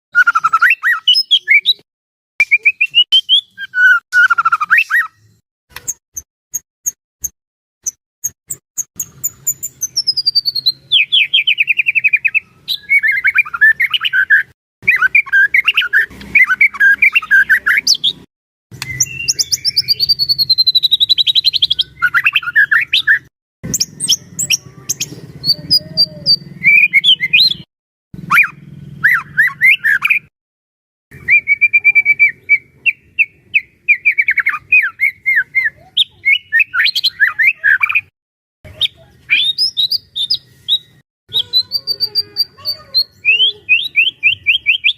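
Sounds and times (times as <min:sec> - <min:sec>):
bird singing whistles and trills: 0:00.2 - 0:01.8, 0:02.4 - 0:05.4, 0:09.0 - 0:27.7, 0:28.3 - 0:30.3, 0:31.2 - 0:38.1, 0:38.7 - 0:44.9.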